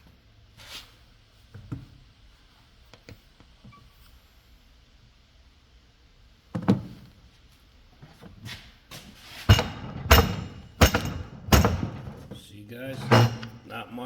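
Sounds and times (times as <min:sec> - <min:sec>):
hard knocks and thunks: 0:09.5 - 0:12.4.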